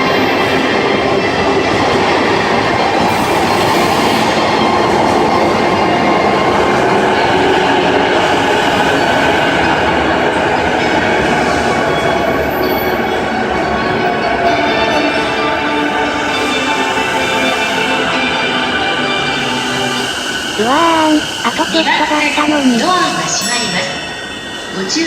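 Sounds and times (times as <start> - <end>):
electric train wheel and motor noise: 0.0 - 25.0.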